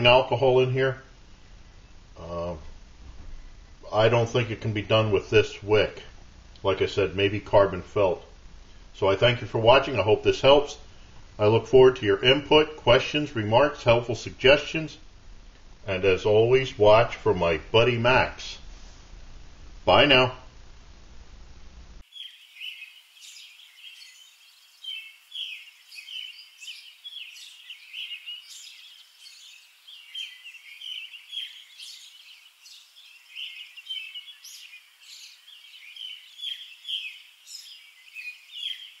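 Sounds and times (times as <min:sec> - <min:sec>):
small birds chirping and singing: 0:22.0 - 0:39.0.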